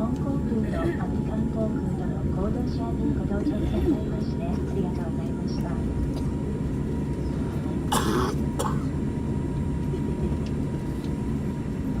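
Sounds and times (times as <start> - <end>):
airliner cabin rumble: 0.0 - 12.0
person coughing: 7.9 - 8.9.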